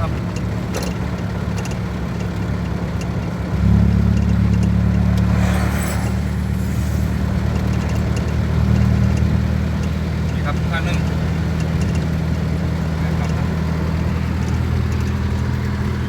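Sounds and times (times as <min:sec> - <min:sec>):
vehicle engine hum: 0:00.1 - 0:16.0
road noise: 0:02.4 - 0:16.0
brief rushing noise: 0:04.8 - 0:08.5.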